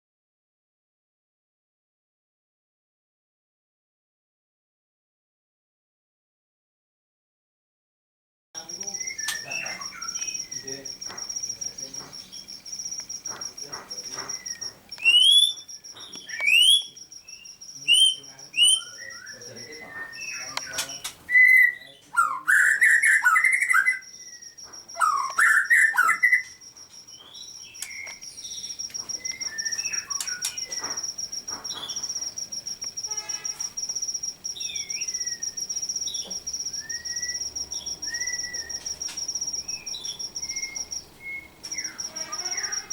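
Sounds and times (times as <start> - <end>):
steady high-pitched tone: 8.6 - 20.8, 23.4 - 42.9
songbirds calling: 8.6 - 42.9.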